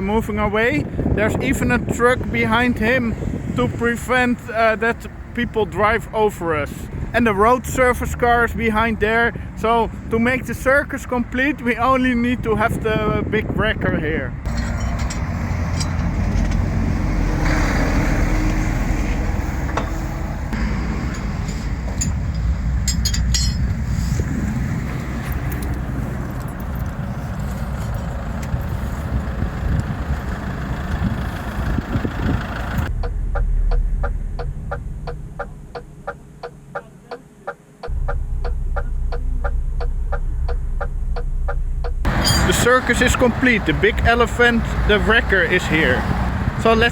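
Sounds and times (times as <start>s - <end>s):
motorway traffic rumble: 0.0s - 46.9s
low hum: 14.5s - 29.0s, 32.7s - 37.1s, 37.9s - 45.0s.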